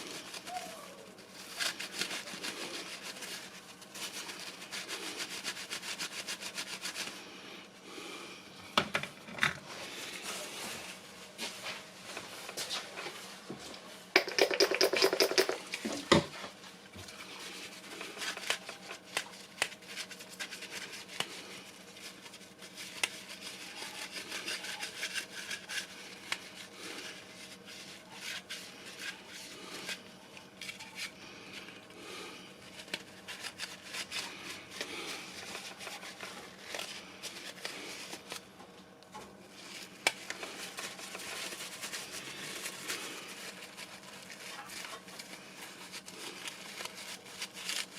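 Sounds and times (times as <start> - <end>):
small objects clicking and scraping: 14.2 - 16.0.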